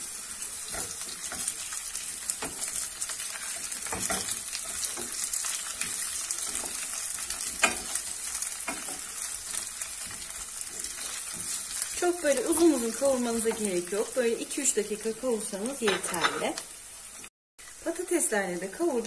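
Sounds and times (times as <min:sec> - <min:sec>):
potatoes and onions sizzling in oil: 0:00.0 - 0:19.0
wooden spoon scraping and knocking pot: 0:15.7 - 0:16.6.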